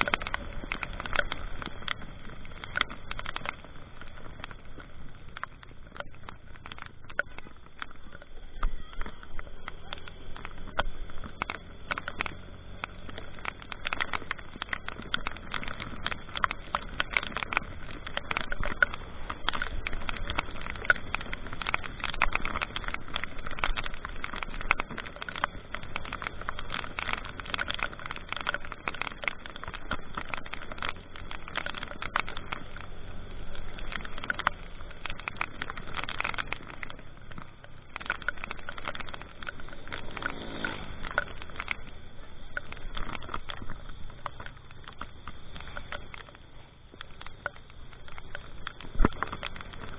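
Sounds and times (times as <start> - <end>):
engine and road drone: 0.0 - 49.9
raindrops striking: 0.0 - 49.9.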